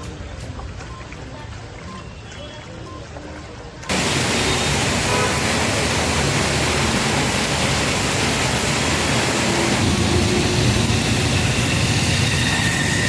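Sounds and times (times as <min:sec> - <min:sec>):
heavy rain falling: 0:03.9 - 0:13.0.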